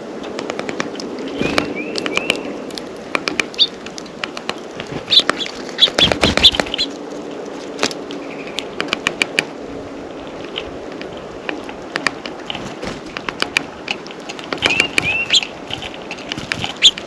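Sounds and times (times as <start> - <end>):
birds tapping and pecking: 0.2 - 9.5, 10.5 - 17.0
bird wing flutters: 4.8 - 7.0, 12.5 - 13.6.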